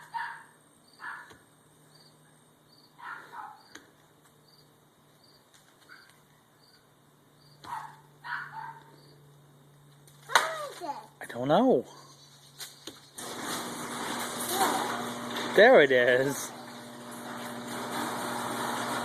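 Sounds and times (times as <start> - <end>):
dog barking: 0.0 - 1.4, 3.0 - 3.7, 7.6 - 8.9.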